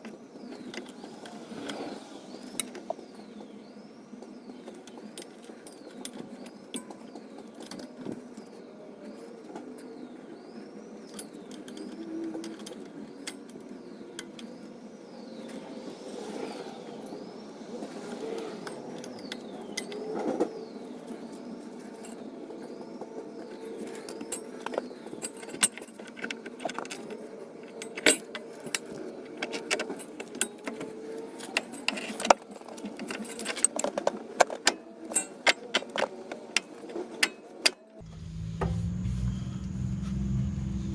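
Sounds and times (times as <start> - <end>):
faint high chirp: 38.0 - 40.9.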